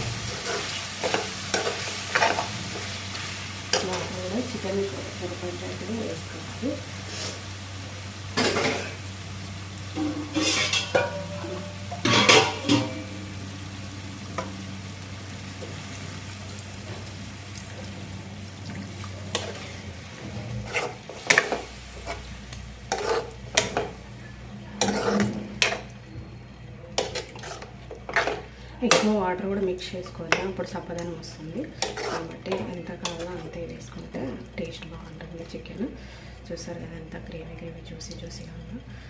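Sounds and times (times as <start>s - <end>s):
steady sizzle: 0.0s - 39.0s
spoon stirring and scraping pan: 0.1s - 4.5s, 10.0s - 13.1s, 19.3s - 24.0s, 24.7s - 25.9s, 27.0s - 29.2s, 29.9s - 34.8s.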